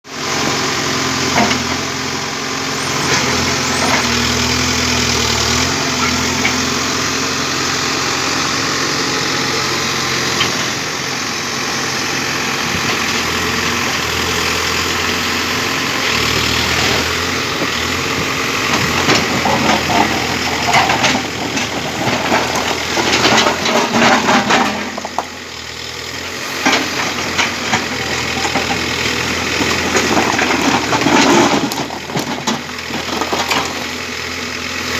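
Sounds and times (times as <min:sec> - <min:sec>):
backhoe diesel engine working: 0:00.1 - 0:34.9
metal clanks and scraping: 0:01.3 - 0:01.9, 0:02.8 - 0:04.7, 0:16.7 - 0:25.3, 0:26.6 - 0:34.0.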